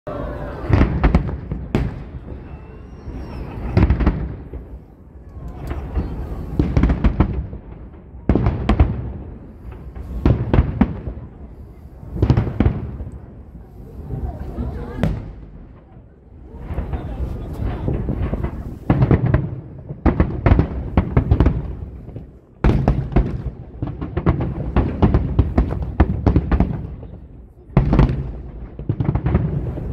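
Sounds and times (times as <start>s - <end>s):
fireworks bangs: 0.1s - 29.9s
faint whistle: 2.1s - 3.7s.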